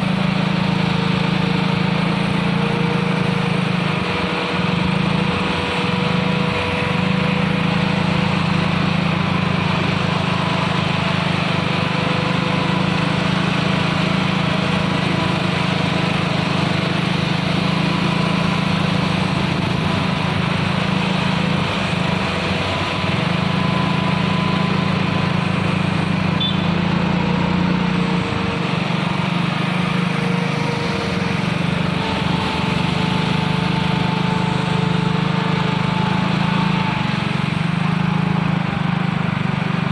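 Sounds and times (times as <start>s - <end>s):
diesel truck engine under load: 0.0s - 39.9s
held higher tone: 26.3s - 26.9s.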